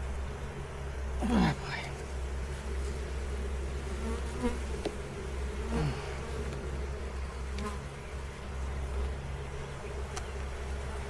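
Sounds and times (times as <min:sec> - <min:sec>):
bees buzzing: 0:00.0 - 0:11.0
bees flying close past: 0:00.0 - 0:11.0.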